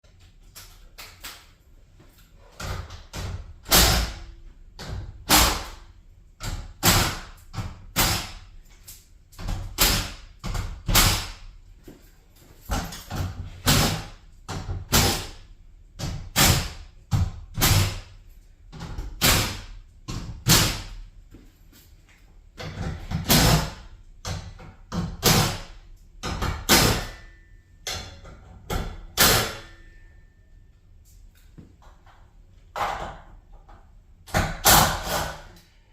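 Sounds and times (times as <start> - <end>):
bangs on garage door parts: 2.6 - 8.5, 9.4 - 11.5, 12.6 - 15.4, 16.0 - 21.1, 22.6 - 30.0.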